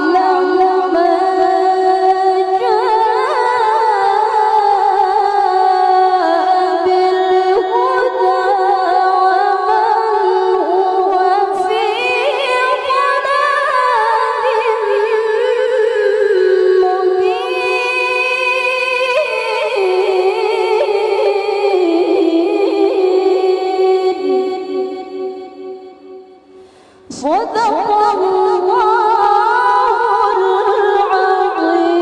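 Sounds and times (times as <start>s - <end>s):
woman reciting in melismatic chant: 0.0s - 32.0s.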